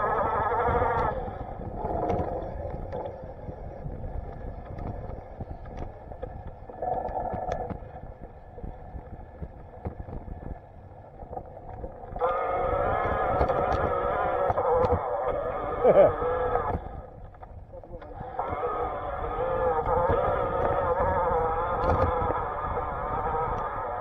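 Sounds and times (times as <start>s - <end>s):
wind and tyre rumble: 0.0s - 24.0s.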